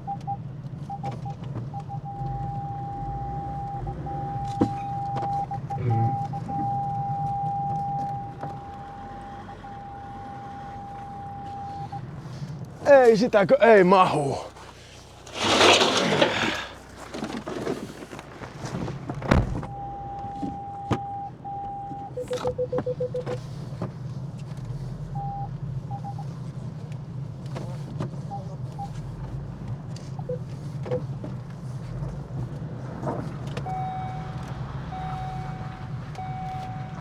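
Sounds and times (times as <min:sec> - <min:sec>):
electronic warning beeps: 0:00.0 - 0:12.0, 0:19.7 - 0:23.4, 0:25.2 - 0:26.2, 0:30.2 - 0:31.0, 0:33.7 - 0:37.0
car engine humming: 0:00.0 - 0:37.0.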